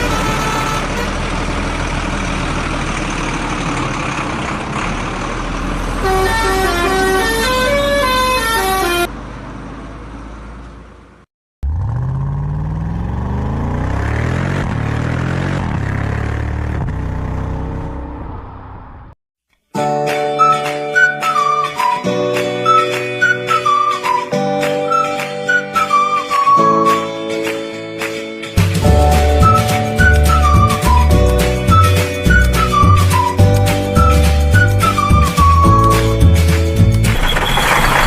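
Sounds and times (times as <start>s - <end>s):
musical horn playing a tune: 0.0s - 1.2s, 5.9s - 9.1s
truck engine revving: 0.0s - 19.2s, 28.6s - 38.0s.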